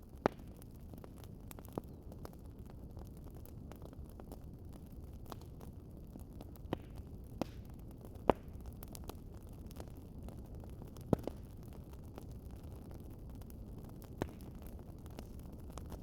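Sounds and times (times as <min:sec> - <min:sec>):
wood fire crackling: 0:00.0 - 0:16.0
sharp pops of fire: 0:00.2 - 0:00.7, 0:06.5 - 0:10.0, 0:10.8 - 0:16.0.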